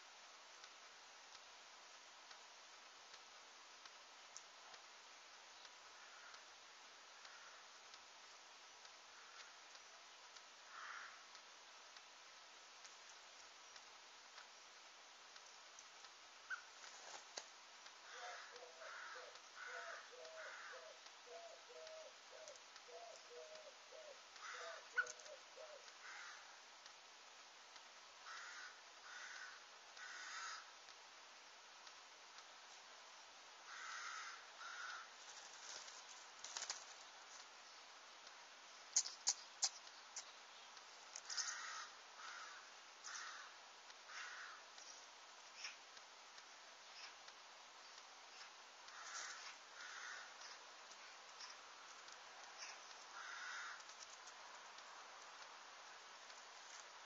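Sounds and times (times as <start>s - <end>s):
harsh crow-like caws: 5.9s - 6.5s, 7.2s - 7.8s, 9.1s - 9.6s, 10.6s - 11.4s, 18.0s - 21.4s, 24.4s - 25.1s, 26.0s - 26.6s, 28.2s - 30.8s, 33.6s - 35.2s, 41.2s - 44.8s, 48.9s - 50.7s, 52.6s - 54.0s
low repeated bird call: 16.4s - 16.8s, 18.0s - 26.6s, 38.7s - 45.9s, 46.5s - 51.8s, 52.5s - 54.1s
sharp clicks: 38.2s - 41.5s
sharp ticks: 38.2s - 41.6s.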